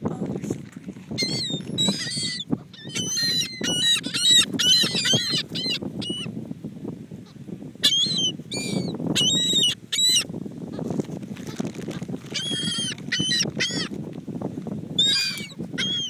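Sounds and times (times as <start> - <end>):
seagulls calling: 1.2 - 6.3, 7.8 - 10.3, 12.3 - 14.0, 15.0 - 16.0.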